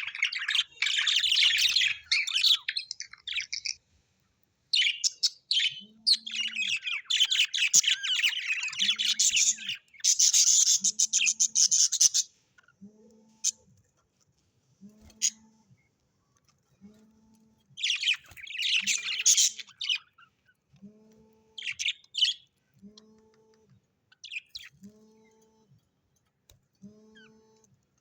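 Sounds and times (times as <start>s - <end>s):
parrots chirping and chattering: 0.0s - 3.8s, 4.7s - 12.8s, 17.8s - 20.7s, 21.6s - 22.6s, 24.1s - 25.3s.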